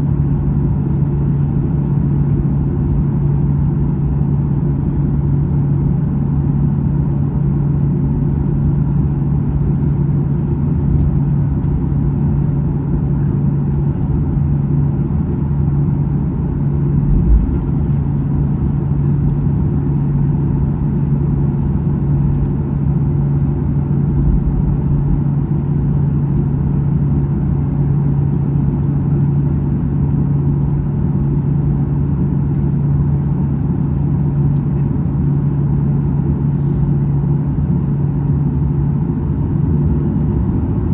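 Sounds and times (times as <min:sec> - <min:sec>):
aircraft cabin drone: 0:00.0 - 0:40.9
brief low bump: 0:17.0 - 0:17.8.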